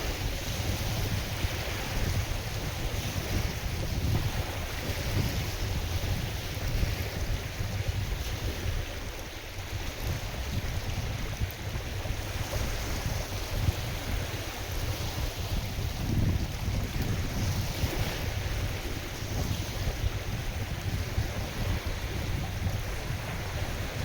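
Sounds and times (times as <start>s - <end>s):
waves washing: 0.0s - 24.0s
wind blowing: 0.0s - 24.0s
wind buffeting microphone: 0.0s - 24.0s.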